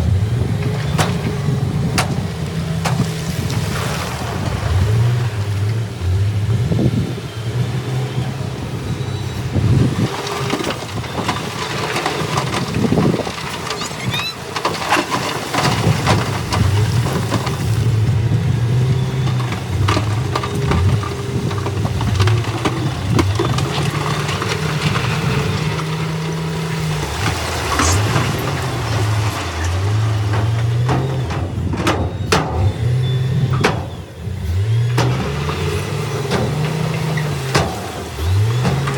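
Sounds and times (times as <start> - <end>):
diesel engine revving: 0.0 - 38.9
sharp knocks and clanks: 0.6 - 3.5, 27.1 - 38.9.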